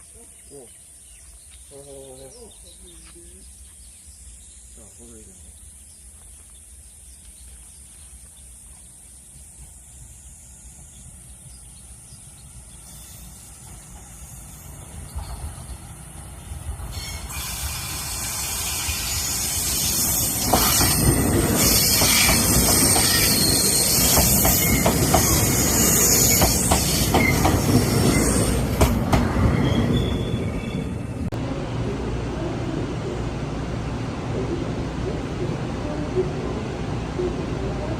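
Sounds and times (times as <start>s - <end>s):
train passing: 9.6s - 37.9s
wheels squealing on rail: 12.8s - 15.6s, 16.8s - 31.2s
wheels clacking over rail joints: 20.0s - 30.5s.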